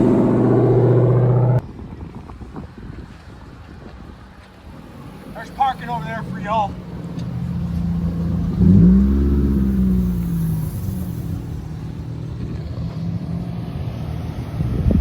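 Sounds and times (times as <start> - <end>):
car engine revving: 0.0 - 1.6, 5.3 - 14.4.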